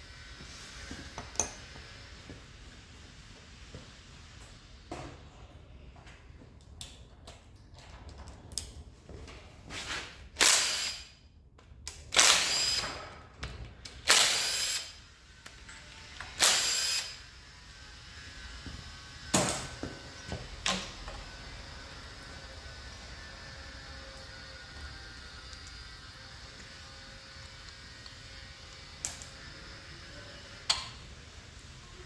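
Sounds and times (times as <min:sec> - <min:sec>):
power tool bursts: 0:10.4 - 0:11.1, 0:12.2 - 0:13.0, 0:14.0 - 0:15.0, 0:16.3 - 0:17.3
clicks and knocks of tools: 0:27.4 - 0:29.4, 0:30.7 - 0:31.0.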